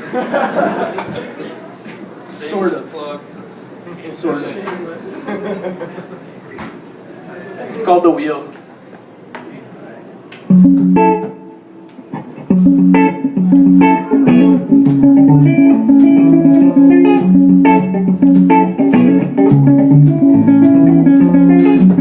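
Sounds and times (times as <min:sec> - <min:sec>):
bass guitar: 0:10.5 - 0:11.4, 0:12.1 - 0:22.0
electric guitar riff: 0:10.5 - 0:22.0.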